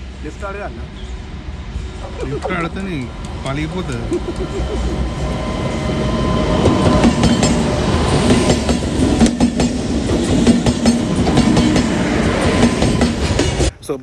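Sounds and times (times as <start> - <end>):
train wheels clattering over rail joints: 6.5 - 13.7.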